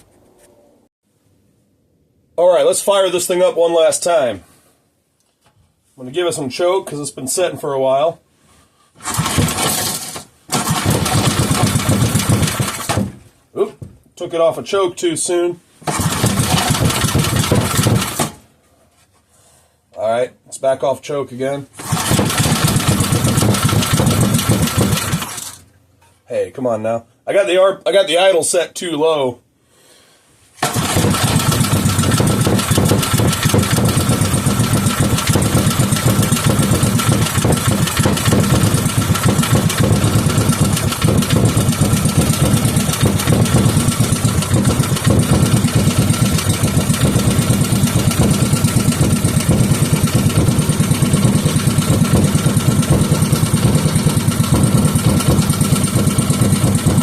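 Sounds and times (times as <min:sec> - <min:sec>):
small engine running: 0:09.0 - 0:13.1, 0:15.9 - 0:18.4, 0:21.8 - 0:25.6, 0:30.6 - 0:57.0.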